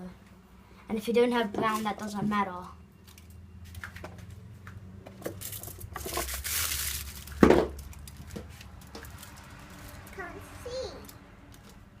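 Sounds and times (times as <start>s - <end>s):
rustling scrape: 5.4s - 7.4s.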